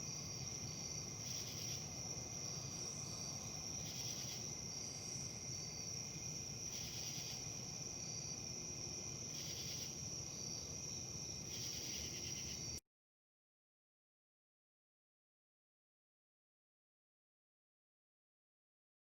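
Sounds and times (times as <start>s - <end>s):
insects trilling: 0.0s - 12.8s.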